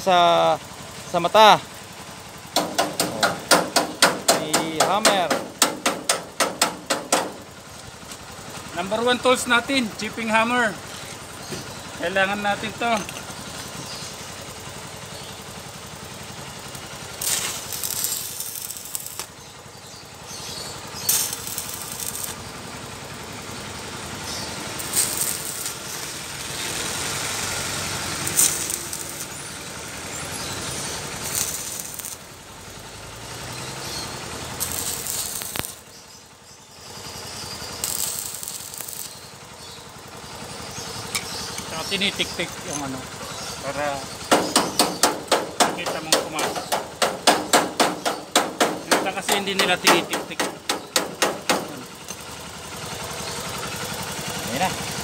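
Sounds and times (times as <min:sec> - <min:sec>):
welding arc crackling: 0:02.5 - 0:07.5, 0:16.1 - 0:43.1, 0:44.1 - 0:52.3.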